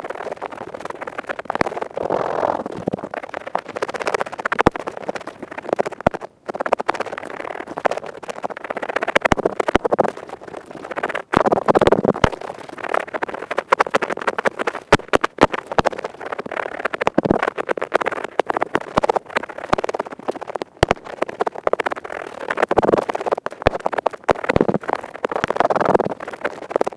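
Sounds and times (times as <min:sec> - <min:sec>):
earpick scraping close-up: 0:01.8 - 0:03.1.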